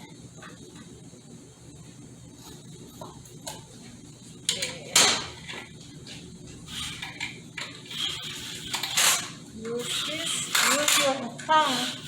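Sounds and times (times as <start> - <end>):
metal tool scraping metal parts: 6.7 - 12.0.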